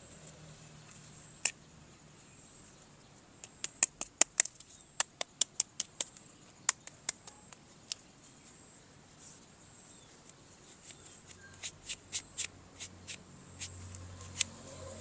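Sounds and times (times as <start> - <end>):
small hard objects clicking: 3.4 - 8.0.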